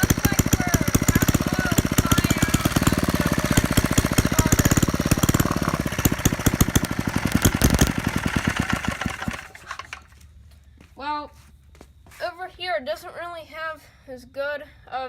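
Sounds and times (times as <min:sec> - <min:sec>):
old engine running: 0:00.0 - 0:10.2.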